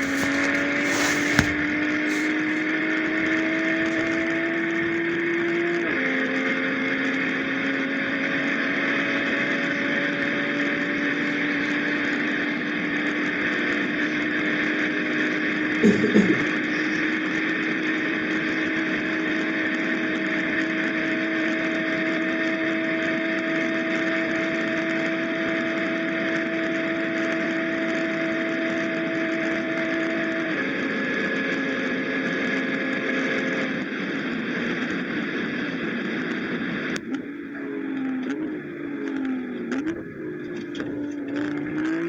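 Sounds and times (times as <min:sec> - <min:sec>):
car engine and exhaust droning: 0:16.5 - 0:42.0.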